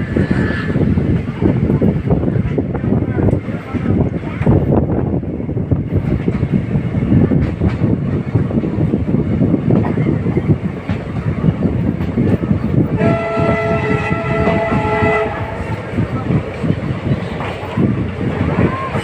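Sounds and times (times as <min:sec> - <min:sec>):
train rumbling on track: 0:00.0 - 0:19.0
locomotive horn blast: 0:12.9 - 0:15.9.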